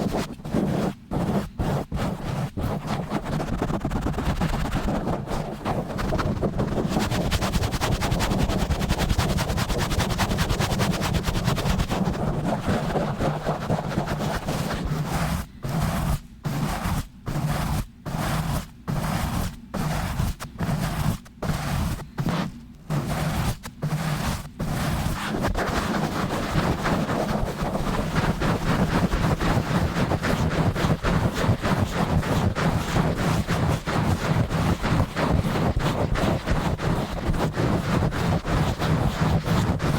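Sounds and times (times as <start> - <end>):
rough scratching on microphone: 0.0 - 39.9.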